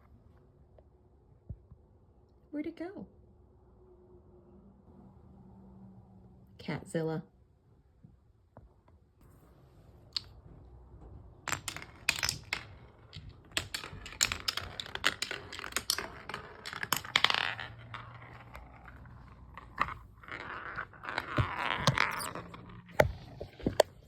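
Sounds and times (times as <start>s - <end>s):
marbles clattering on wooden run: 11.4s - 24.0s.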